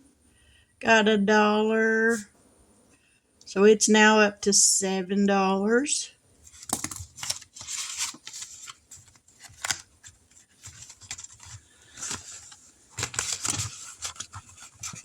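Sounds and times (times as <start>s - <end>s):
paper rustling and scraping: 6.4s - 15.0s.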